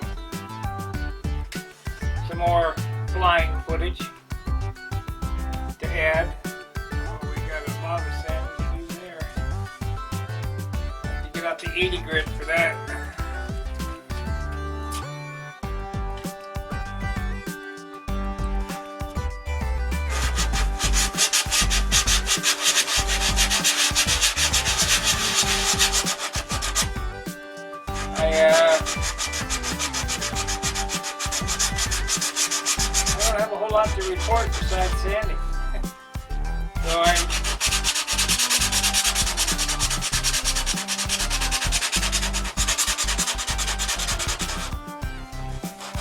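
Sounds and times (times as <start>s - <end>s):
sandpaper scraping: 5.8s - 9.4s, 11.3s - 13.2s, 20.0s - 35.4s, 36.8s - 46.0s.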